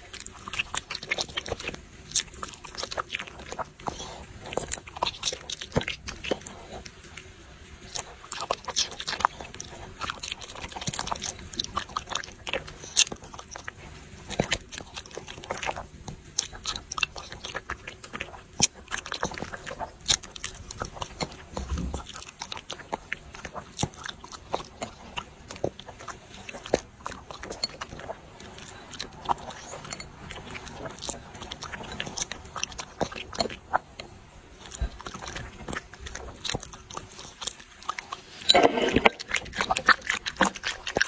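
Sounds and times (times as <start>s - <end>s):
dogs chewing food: 0.0s - 41.0s.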